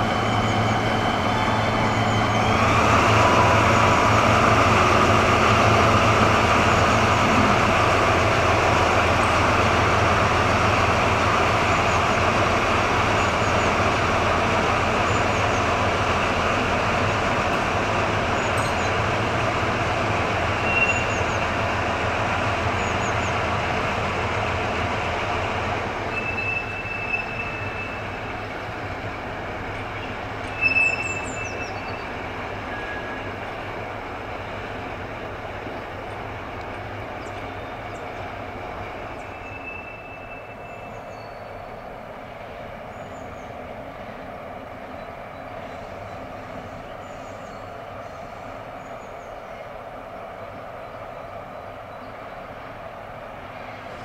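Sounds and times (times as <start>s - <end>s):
diesel locomotive engine: 0.0s - 54.0s
wheels squealing on curve: 26.1s - 28.3s, 30.5s - 32.1s.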